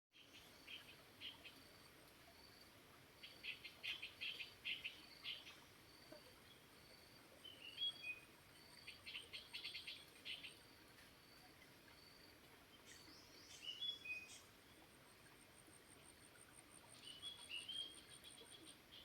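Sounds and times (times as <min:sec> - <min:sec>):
soft steady hiss: 0:00.2 - 0:19.0.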